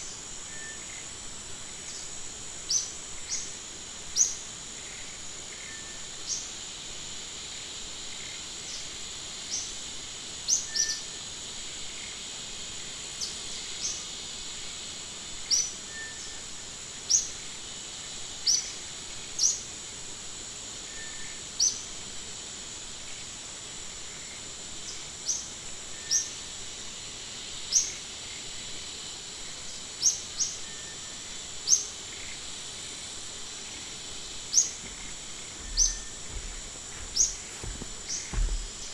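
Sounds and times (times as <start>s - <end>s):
bird chirps: 35.6s - 36.2s.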